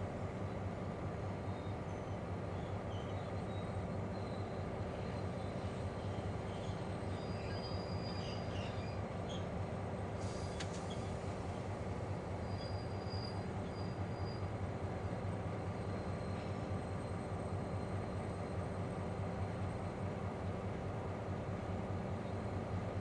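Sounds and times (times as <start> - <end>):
diesel engine rumble: 0.0 - 23.0
short hiss: 10.2 - 11.2.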